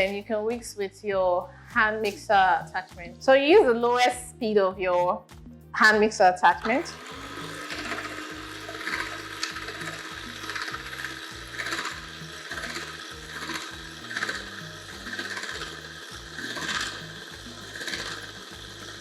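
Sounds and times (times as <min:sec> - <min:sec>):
beaters scraping bowl: 0:06.5 - 0:19.0
electric hand mixer running: 0:06.5 - 0:19.0.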